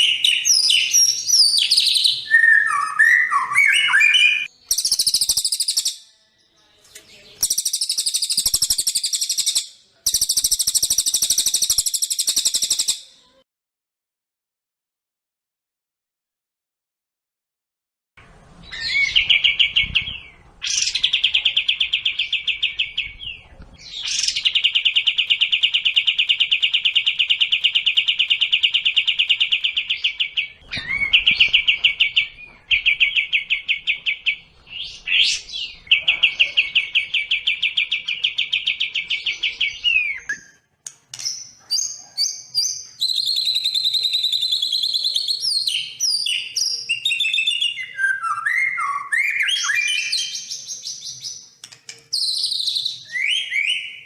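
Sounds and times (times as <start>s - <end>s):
songbird trilling: 0.0s - 6.0s, 7.4s - 13.0s
higher-pitched varied birdsong: 0.0s - 13.4s, 18.5s - 54.0s.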